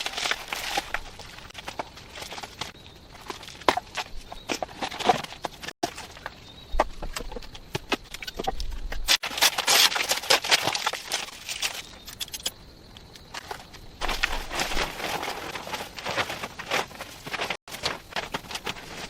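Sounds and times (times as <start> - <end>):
clatter and rustling: 13.4 - 19.0.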